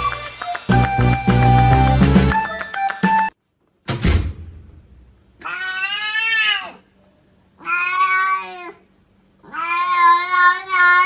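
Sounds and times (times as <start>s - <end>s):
cat meowing: 5.4s - 6.8s, 7.6s - 8.8s, 9.4s - 11.0s.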